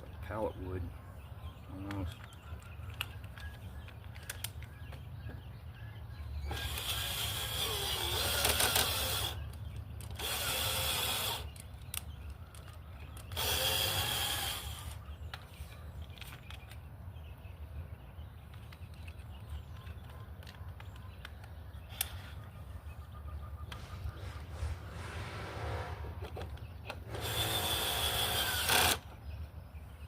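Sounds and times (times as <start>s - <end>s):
electric drill boring into wood: 6.5s - 9.4s, 10.2s - 11.6s, 13.3s - 15.0s, 27.1s - 29.0s
low hum: 22.8s - 28.8s.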